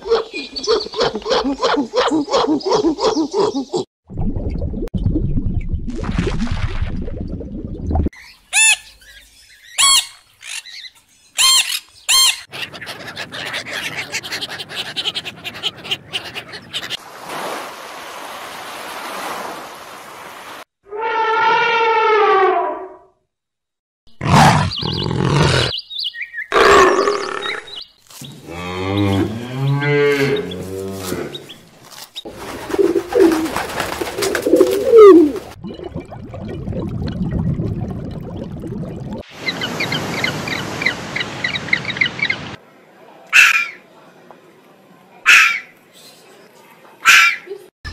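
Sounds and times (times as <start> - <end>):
budgerigar chirps: 9.7 - 16.8, 43.4 - 43.8, 45.3 - 45.7
low stepping animal call: 28.2 - 31.6
rustling noise: 30.1 - 35.5.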